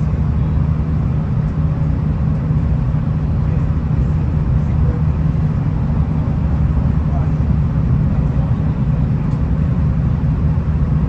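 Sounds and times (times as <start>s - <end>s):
train rumbling inside carriage: 0.0s - 11.0s.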